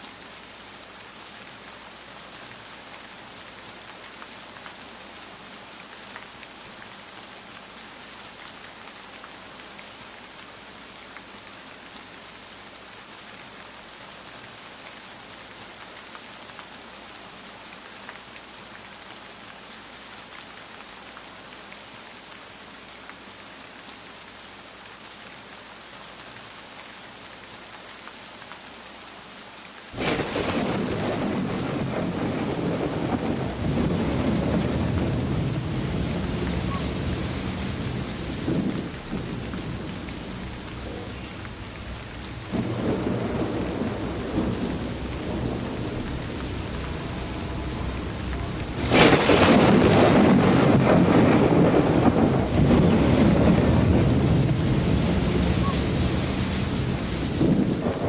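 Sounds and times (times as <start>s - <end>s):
steady rain hiss: 0.0s - 58.0s
deep thunder rumble: 30.0s - 58.0s.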